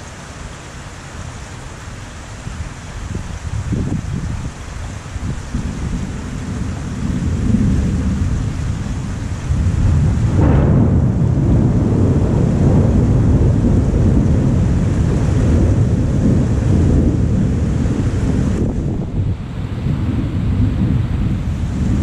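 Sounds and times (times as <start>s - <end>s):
thunder rumbling: 5.2s - 22.0s
sharp thunder clap: 5.6s - 22.0s.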